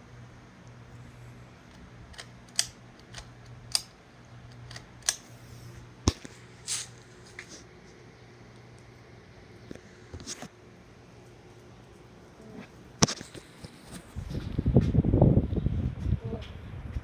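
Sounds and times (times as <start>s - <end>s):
ceiling fan motor humming: 0.0s - 17.0s
sharp clicks: 1.7s - 5.4s.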